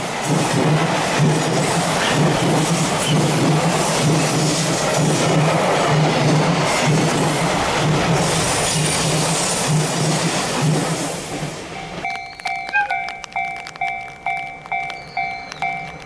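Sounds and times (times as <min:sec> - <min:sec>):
freight wagons rumbling on rails: 0:00.0 - 0:16.0
level-crossing alarm ringing: 0:11.6 - 0:16.0.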